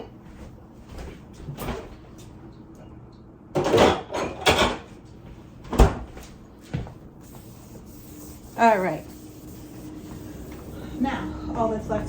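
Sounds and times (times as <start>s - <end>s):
kitchen items rubbing and sliding: 7.2s - 12.0s.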